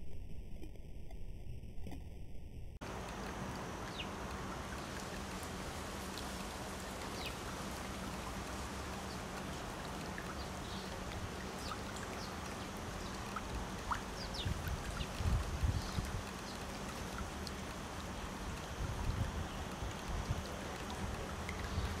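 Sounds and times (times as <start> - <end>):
steady rushing hiss: 2.8 - 22.0
wind buffeting microphone: 13.0 - 16.6, 18.4 - 22.0.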